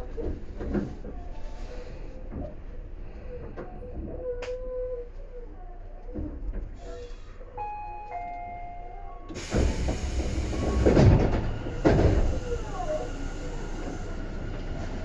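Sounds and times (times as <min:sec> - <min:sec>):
rushing clattering train noise: 0:00.0 - 0:03.7, 0:09.3 - 0:15.0
train rumble: 0:00.0 - 0:15.0
high ringing tone: 0:07.6 - 0:09.3.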